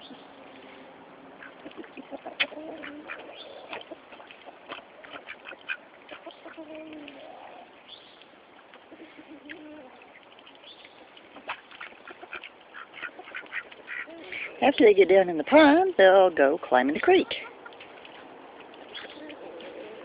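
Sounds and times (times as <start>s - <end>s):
ducks quacking: 1.4s - 7.7s, 11.0s - 14.6s.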